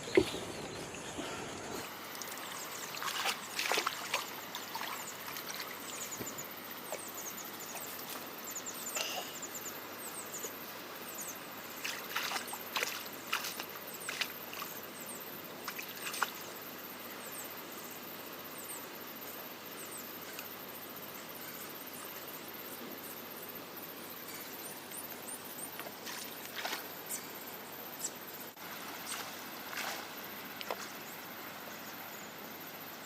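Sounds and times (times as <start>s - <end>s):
water flowing: 0.0s - 8.4s
sharp clicks and splashes: 1.6s - 6.4s, 29.1s - 31.0s.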